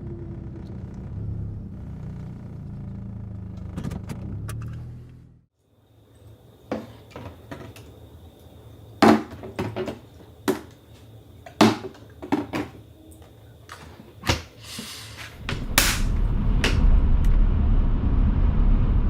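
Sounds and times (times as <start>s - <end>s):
hard objects knocking and clicking: 11.5s - 12.8s.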